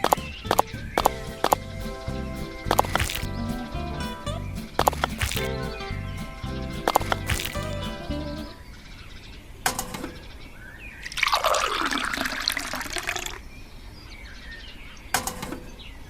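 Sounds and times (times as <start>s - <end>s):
water pouring: 1.0s - 5.7s, 6.4s - 8.1s.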